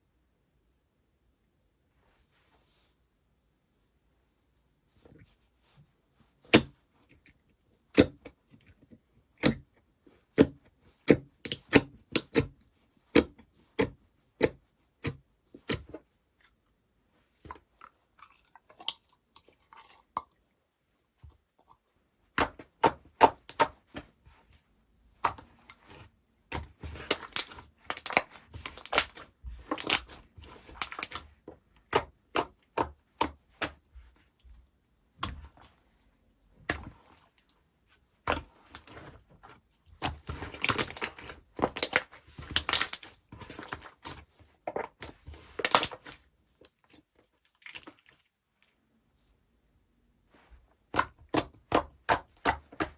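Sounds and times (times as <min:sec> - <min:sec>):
slime popping and crackling: 0:26.5 - 0:33.8, 0:40.0 - 0:46.2, 0:50.9 - 0:52.9.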